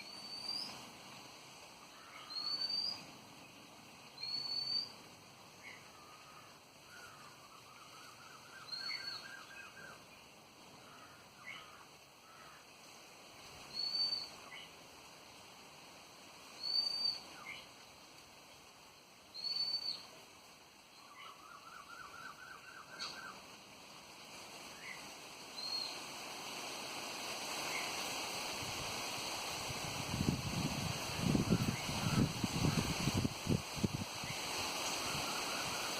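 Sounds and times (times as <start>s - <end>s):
high downslurred bird whistle: 2.3s - 3.0s, 4.2s - 4.9s
wind noise: 27.4s - 35.9s.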